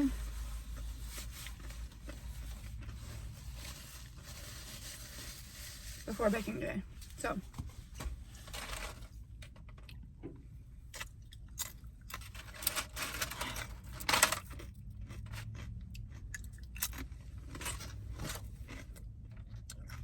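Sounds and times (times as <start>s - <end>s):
rustling: 0.1s - 9.1s
chewing and crunching food: 8.5s - 20.0s.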